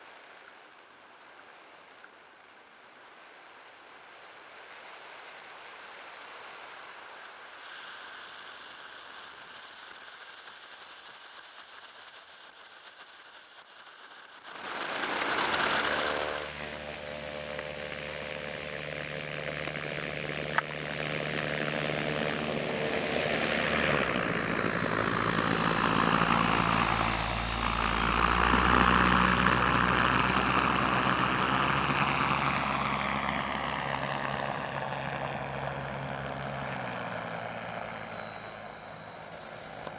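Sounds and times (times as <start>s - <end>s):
high electric whine: 14.5s - 39.9s
propeller humming: 14.5s - 39.9s.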